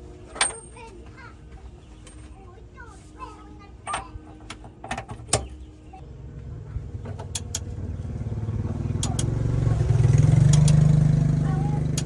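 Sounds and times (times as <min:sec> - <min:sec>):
heavy truck engine running: 0:00.0 - 0:12.0
sharp clicks: 0:07.2 - 0:07.7, 0:09.0 - 0:09.4, 0:10.4 - 0:10.9.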